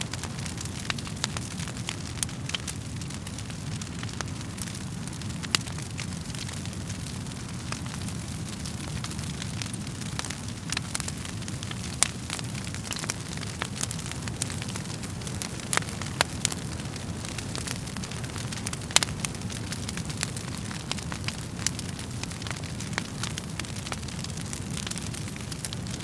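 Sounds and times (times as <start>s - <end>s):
low rumble of flames: 0.0s - 26.0s
wood fire crackling: 0.0s - 26.0s.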